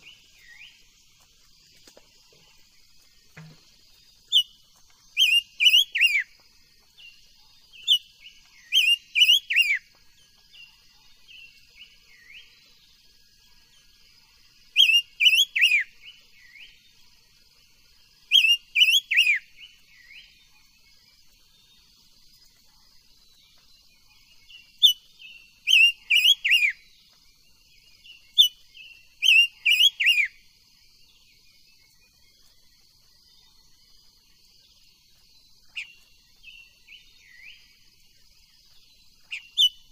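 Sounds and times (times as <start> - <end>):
bird whistling downward notes: 5.2 - 6.2, 8.7 - 9.8, 25.7 - 26.8, 29.2 - 30.3.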